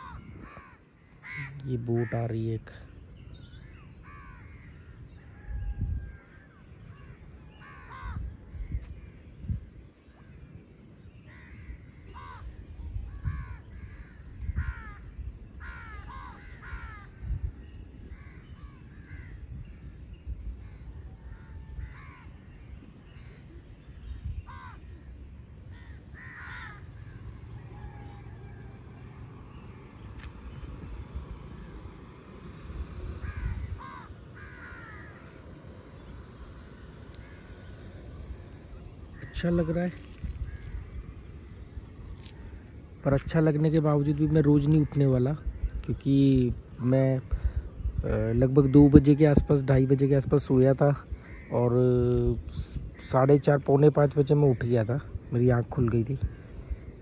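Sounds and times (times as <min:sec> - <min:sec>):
crows cawing: 0:00.0 - 0:02.3, 0:04.0 - 0:08.4, 0:11.3 - 0:17.4, 0:18.1 - 0:19.5, 0:20.6 - 0:22.4, 0:24.5 - 0:24.9, 0:25.7 - 0:28.8, 0:33.2 - 0:37.8, 0:40.0 - 0:41.4, 0:51.0 - 0:51.7
other birds calling: 0:00.0 - 0:57.0
low uneven rumble: 0:01.6 - 0:57.0.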